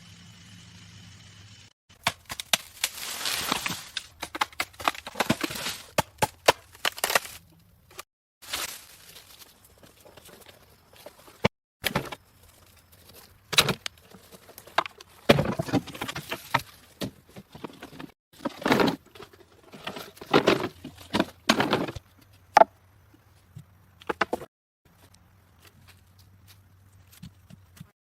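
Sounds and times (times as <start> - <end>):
rustles and scrapes: 7.9 - 22.5.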